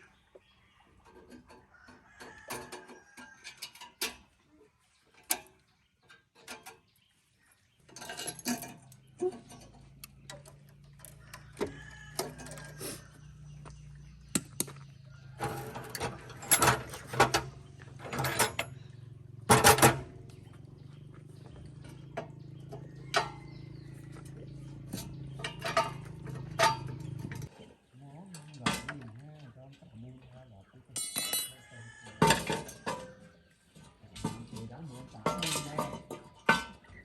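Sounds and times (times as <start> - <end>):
metal tools clinking and knocking: 2.2 - 4.3, 6.1 - 6.9, 7.8 - 13.4, 14.4 - 27.5, 31.0 - 37.0.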